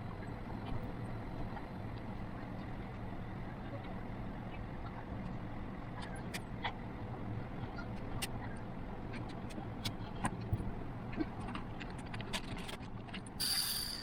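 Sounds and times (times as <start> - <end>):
fidget spinner whirring: 13.4 - 14.0.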